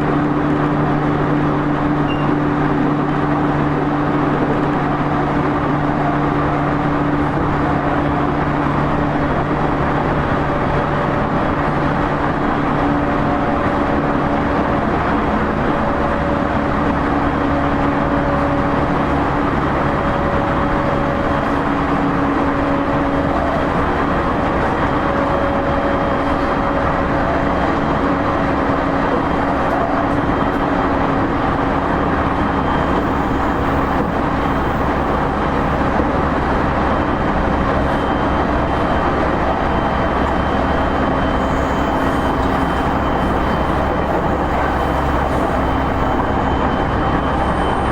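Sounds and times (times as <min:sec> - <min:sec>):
train wheels rumbling on rail: 0:00.0 - 0:47.9
electric train motor humming: 0:18.0 - 0:29.8, 0:30.5 - 0:37.6, 0:39.1 - 0:46.4.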